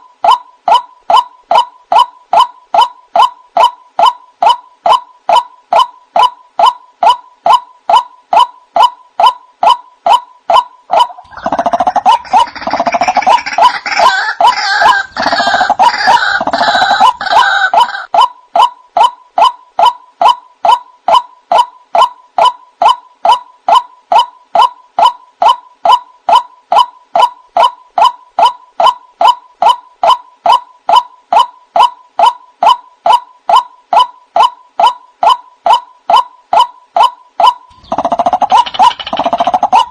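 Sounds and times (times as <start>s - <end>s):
harsh bird chattering: 0.2s - 39.9s
waterhen calling: 10.9s - 18.3s.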